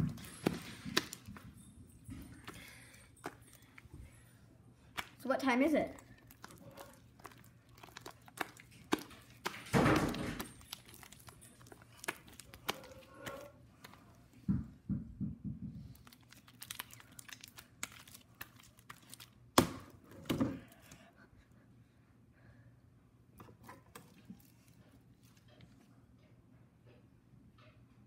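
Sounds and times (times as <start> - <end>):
rustling crinkle: 0.0 - 14.4, 15.8 - 21.0.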